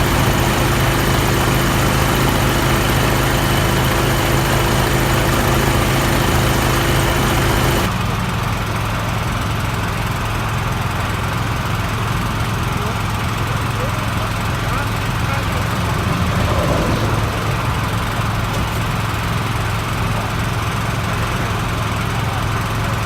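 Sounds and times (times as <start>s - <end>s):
motor humming: 0.0s - 7.9s.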